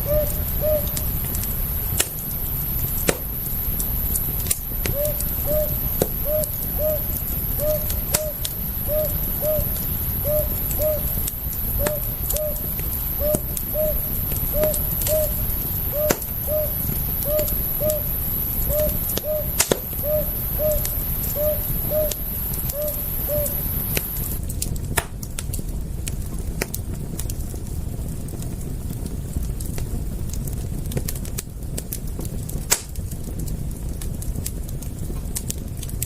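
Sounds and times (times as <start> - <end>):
low rumble: 0.0 - 24.5
campfire crackling and popping: 0.0 - 36.0.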